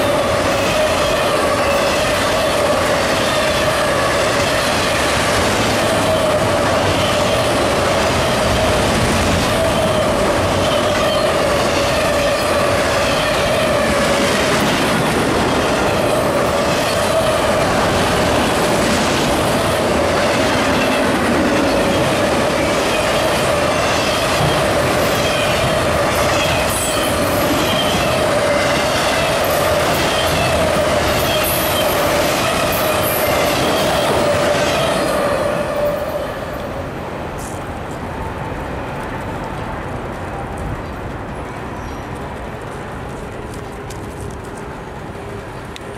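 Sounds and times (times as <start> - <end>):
train wheel squeal: 0.0 - 5.1, 5.8 - 14.6, 20.2 - 36.6, 41.5 - 42.2
train rumble: 0.0 - 45.9
wheels clicking on rails: 0.0 - 45.9.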